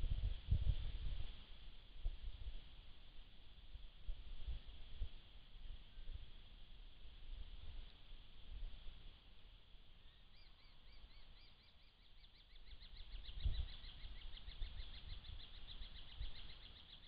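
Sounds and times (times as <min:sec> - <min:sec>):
bird chirping: 0:10.0 - 0:17.0.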